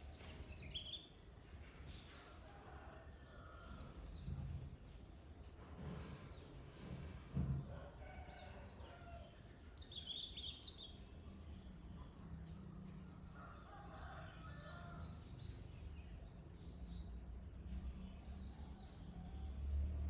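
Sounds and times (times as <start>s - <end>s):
birds chirping: 0.0s - 2.3s, 8.5s - 17.2s.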